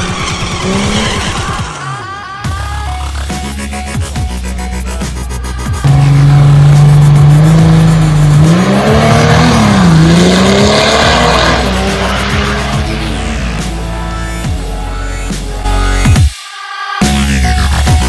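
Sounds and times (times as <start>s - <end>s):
music: 0.0s - 18.0s
diesel truck engine revving: 5.8s - 14.9s.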